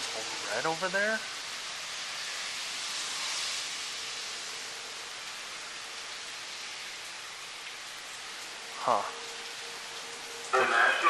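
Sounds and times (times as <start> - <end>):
steady rain: 0.0 - 11.0
distant warning siren: 4.0 - 11.0.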